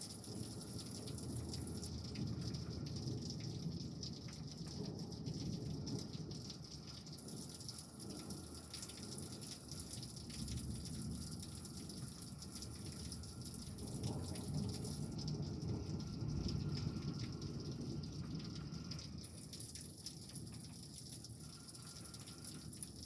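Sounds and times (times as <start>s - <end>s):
steady rain falling: 0.0s - 23.0s
water dripping and splashing: 0.0s - 23.0s
distant thunder rumble: 10.2s - 19.4s.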